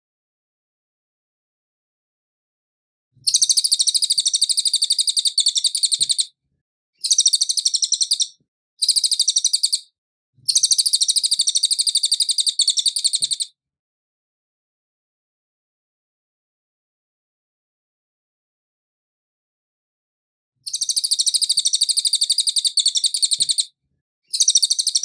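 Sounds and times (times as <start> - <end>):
bird singing high-pitched trills: 3.3 - 6.3, 7.0 - 9.9, 10.5 - 13.5, 20.7 - 23.7, 24.3 - 25.0.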